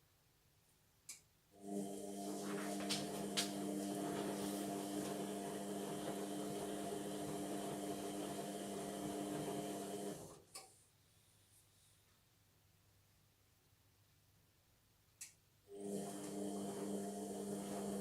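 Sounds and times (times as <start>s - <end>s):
washing machine drum motor hum: 1.6s - 10.3s, 15.8s - 18.0s.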